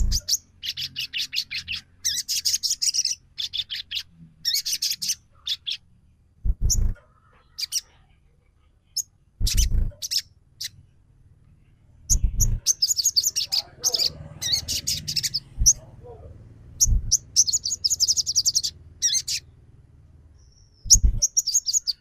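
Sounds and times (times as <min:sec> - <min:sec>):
songbird chirping bursts: 0:00.0 - 0:08.0, 0:08.9 - 0:10.9, 0:12.0 - 0:22.0
low thumps: 0:06.4 - 0:07.0, 0:09.4 - 0:10.0, 0:12.1 - 0:12.7, 0:15.4 - 0:15.8, 0:16.8 - 0:17.3, 0:20.9 - 0:21.3.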